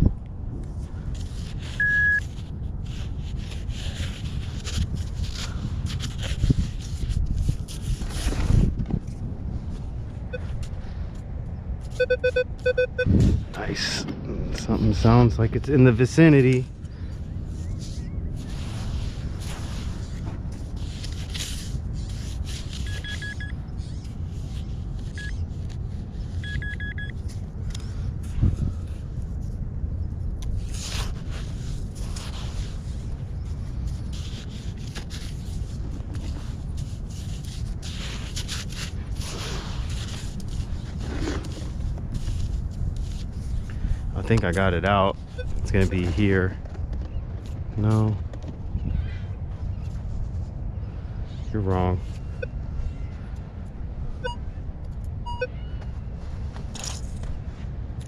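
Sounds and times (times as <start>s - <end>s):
low rumble: 0.0s - 22.6s
scrapes and rustles: 0.6s - 26.5s, 27.1s - 52.4s
metal detector beep: 1.8s - 2.2s, 10.3s - 10.6s, 11.9s - 13.2s, 22.8s - 23.6s, 25.1s - 25.4s, 26.4s - 27.2s, 54.2s - 54.5s, 55.2s - 55.7s.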